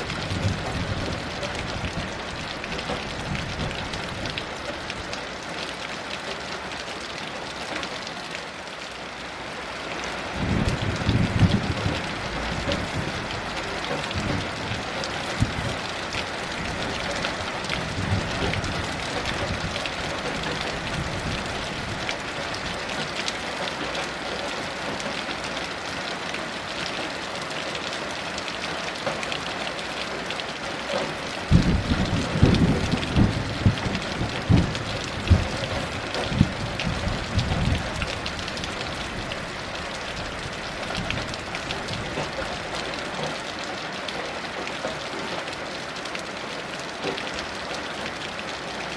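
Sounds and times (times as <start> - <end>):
heavy rain falling: 0.0 - 48.9
thunder rumbling: 10.4 - 15.8, 16.5 - 22.1, 31.5 - 42.3.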